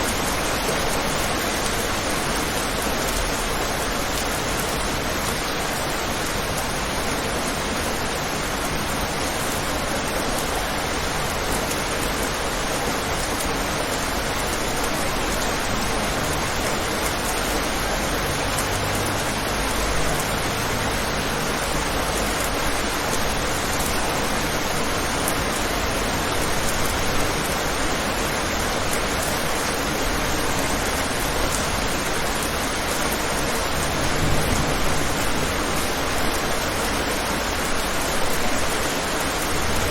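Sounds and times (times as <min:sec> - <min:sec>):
rain pattering on a window: 0:00.0 - 0:39.9.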